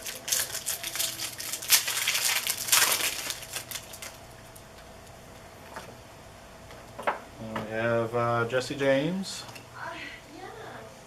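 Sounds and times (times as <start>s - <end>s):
foil wrappers crinkling and tearing: 0.0s - 4.6s.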